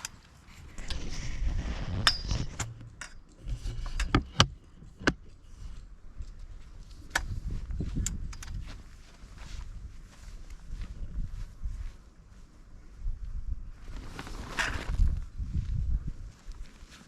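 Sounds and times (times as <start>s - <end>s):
sharp clicks and knocks: 2.0s - 8.7s.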